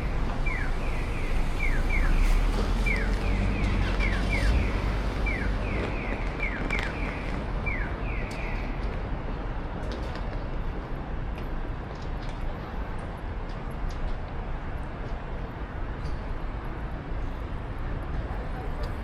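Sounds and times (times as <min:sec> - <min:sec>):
road traffic: 0:00.0 - 0:19.0
wind: 0:00.0 - 0:19.0
crossing signal chirping: 0:00.4 - 0:08.3.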